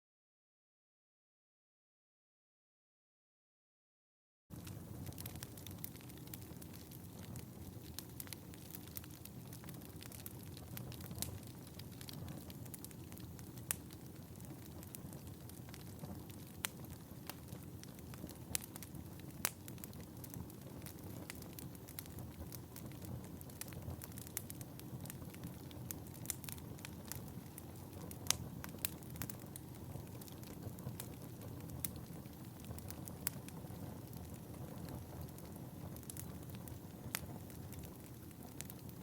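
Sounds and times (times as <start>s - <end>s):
wood fire crackling: 4.5s - 39.0s.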